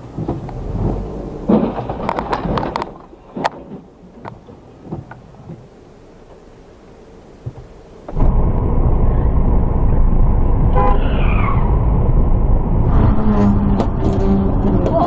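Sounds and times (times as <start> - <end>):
vehicle road and engine noise: 0.0 - 15.0
car horn: 10.7 - 11.6, 12.8 - 14.9.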